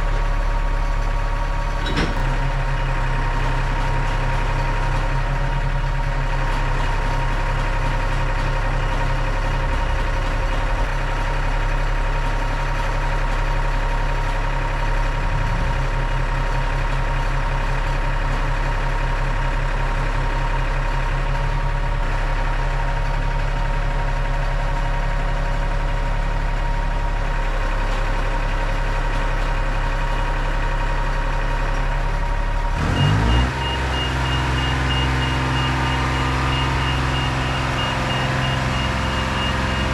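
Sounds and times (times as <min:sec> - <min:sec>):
diesel engine idling: 0:00.0 - 0:39.9
vehicle motion alarm beeping: 0:32.8 - 0:39.9.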